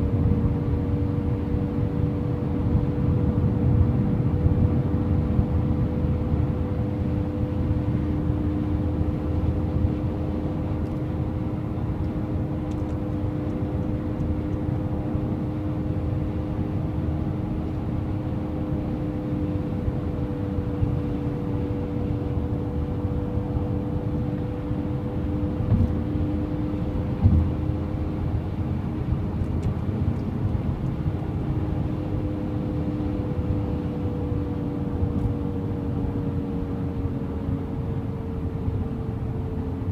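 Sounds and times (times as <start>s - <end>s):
road rumble: 0.0s - 39.9s
thump: 27.2s - 27.5s.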